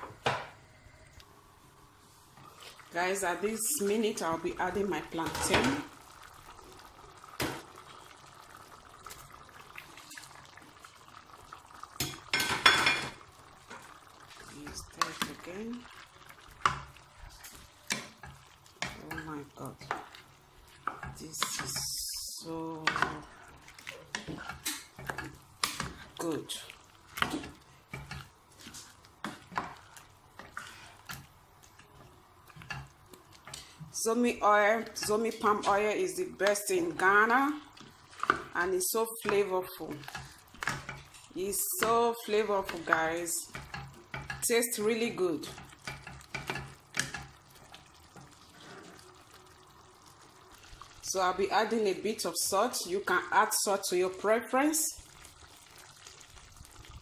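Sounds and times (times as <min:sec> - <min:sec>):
porridge bubbling in a pot: 0:00.0 - 0:57.0
spoon stirring thick porridge: 0:22.8 - 0:33.9, 0:37.6 - 0:38.6, 0:39.2 - 0:44.5.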